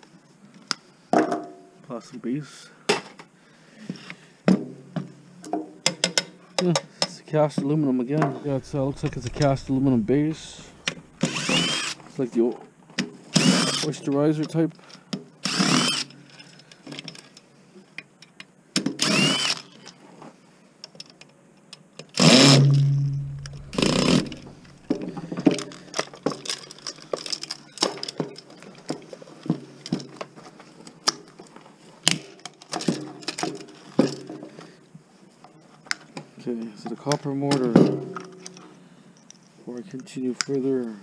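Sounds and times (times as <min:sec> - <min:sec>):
power tool whirring: 0:08.5 - 0:12.0, 0:19.0 - 0:19.6.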